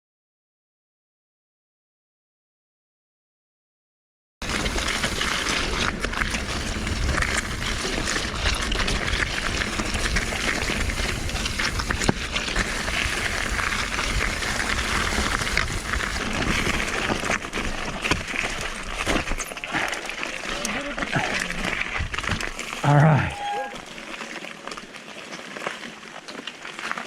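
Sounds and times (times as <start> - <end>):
wind noise: 4.4 - 19.9
bike rattling and clicking: 4.4 - 27.0
bike rolling over rocky trail: 4.4 - 27.0.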